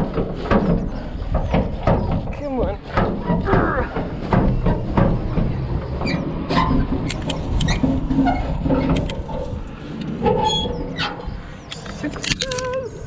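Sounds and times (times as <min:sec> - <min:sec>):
hatch knocking and clattering: 0:00.0 - 0:12.4
low rumble: 0:03.2 - 0:13.0
short squeaks: 0:05.9 - 0:12.9.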